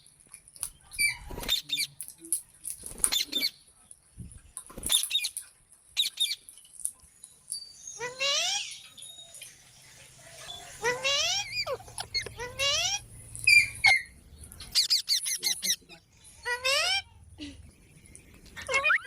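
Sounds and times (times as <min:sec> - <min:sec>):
parakeets squawking: 0:10.5 - 0:17.2, 0:18.6 - 0:19.0.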